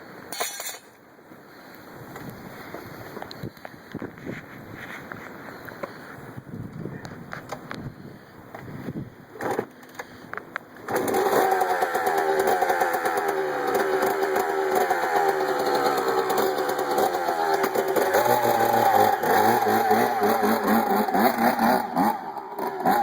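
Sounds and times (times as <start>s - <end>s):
dirt bike engine running: 10.8s - 23.0s.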